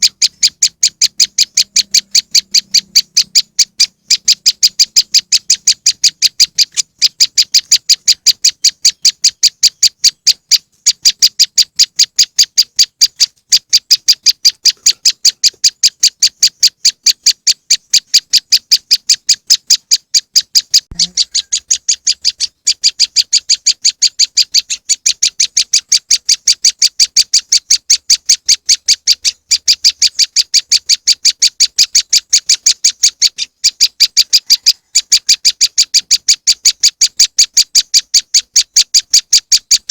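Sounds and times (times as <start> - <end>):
bird-lure chip notes: 0.0 - 29.0.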